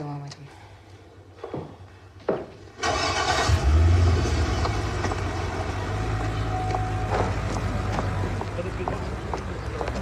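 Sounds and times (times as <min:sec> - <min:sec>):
sports car engine starting: 0:02.8 - 0:06.5.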